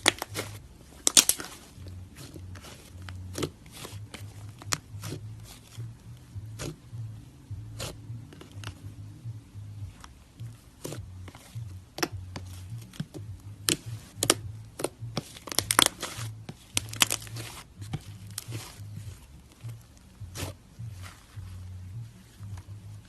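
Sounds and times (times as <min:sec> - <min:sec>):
slime clicking and popping: 0:01.0 - 0:01.6, 0:13.7 - 0:16.1, 0:16.8 - 0:17.3.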